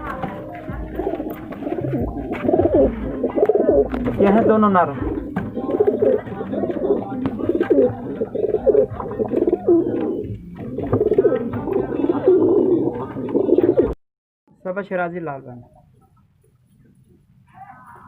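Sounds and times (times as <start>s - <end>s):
pigeons cooing: 0.0s - 14.0s.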